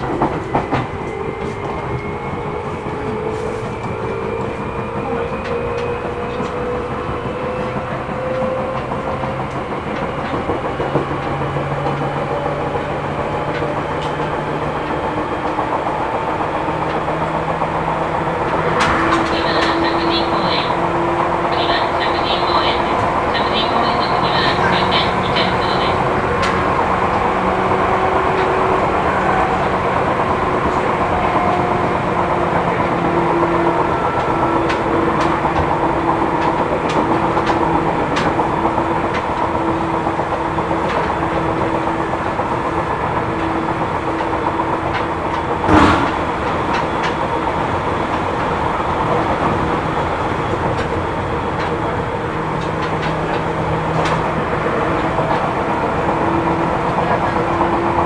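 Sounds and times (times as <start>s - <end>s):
wheel and rail rumble: 0.0s - 58.0s
sharp bang: 45.7s - 46.9s.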